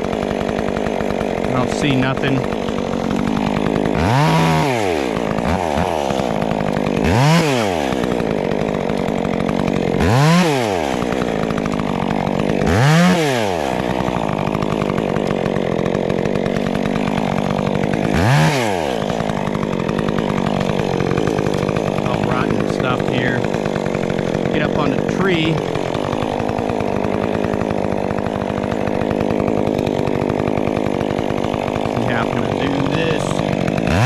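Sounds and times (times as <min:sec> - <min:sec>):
chainsaw revving: 0:00.0 - 0:34.0.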